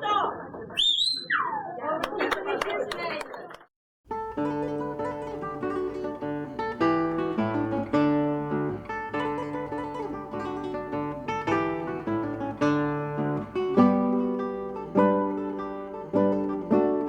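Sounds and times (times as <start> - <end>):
acoustic guitar music: 4.1 - 17.0.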